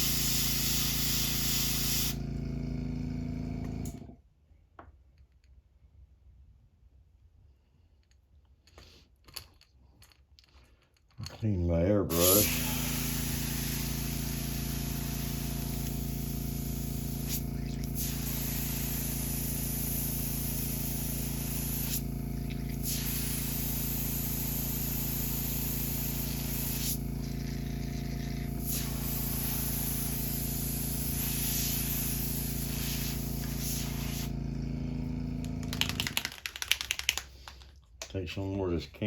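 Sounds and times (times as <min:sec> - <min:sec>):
airbrush hissing sprays: 0:00.0 - 0:02.2, 0:12.1 - 0:34.5
air compressor humming: 0:00.0 - 0:04.2, 0:12.0 - 0:37.4.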